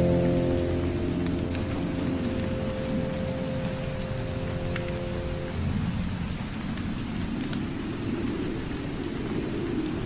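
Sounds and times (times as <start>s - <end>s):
low musical drone: 0.0s - 5.9s
steady rain: 0.0s - 10.0s.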